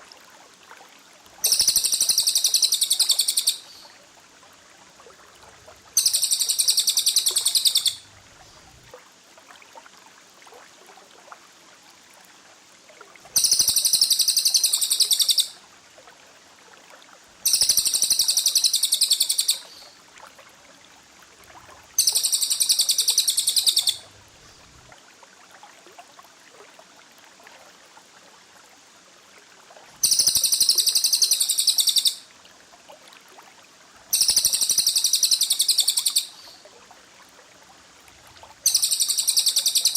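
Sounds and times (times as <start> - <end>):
low hiss: 0.0 - 39.9.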